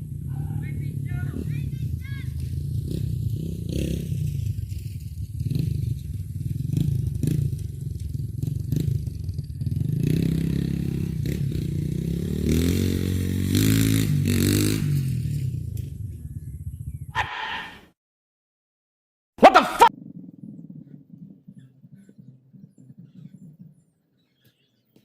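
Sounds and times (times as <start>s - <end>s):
dirt bike engine revving: 0.0s - 15.6s.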